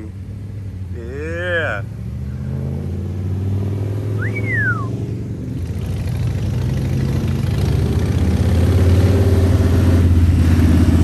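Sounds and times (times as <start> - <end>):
short rising and falling whistle: 4.1 - 5.0.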